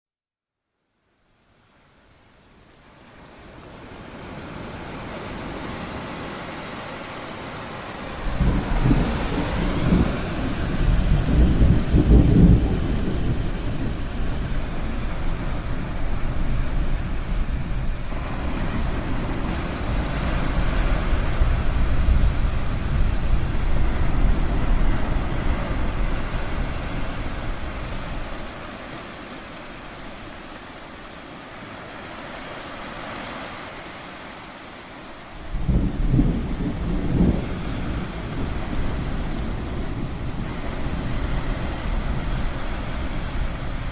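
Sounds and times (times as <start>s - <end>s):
ocean surf: 1.3s - 43.9s
thunder rumbling: 8.0s - 30.5s, 35.4s - 43.9s.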